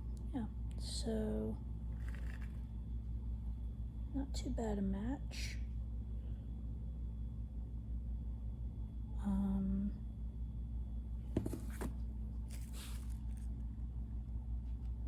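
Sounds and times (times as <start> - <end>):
low background hum: 0.0 - 15.0
handling rustles: 11.4 - 13.5.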